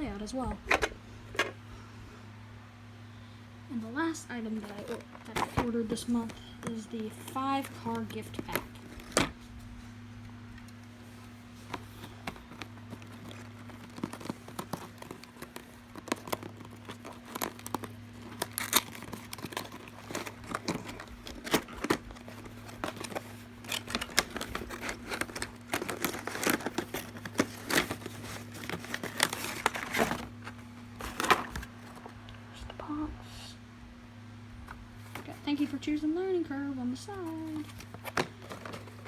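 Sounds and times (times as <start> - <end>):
packaging crinkling and tearing: 4.6 - 9.5, 11.6 - 32.1, 37.5 - 39.0.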